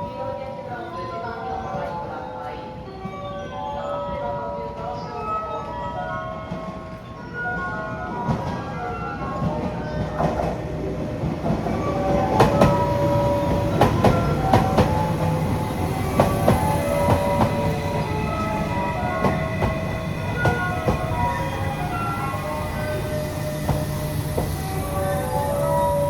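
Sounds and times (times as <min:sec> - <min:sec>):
train low rumble: 0:06.5 - 0:26.0
train wheels clacking: 0:07.6 - 0:26.0.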